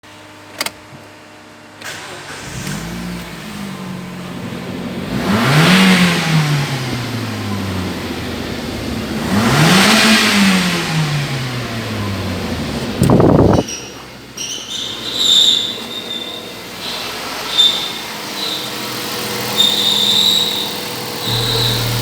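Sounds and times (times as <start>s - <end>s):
car engine starting and idling: 1.7s - 14.4s, 16.4s - 22.0s
car engine revving: 2.3s - 13.6s, 16.5s - 22.0s.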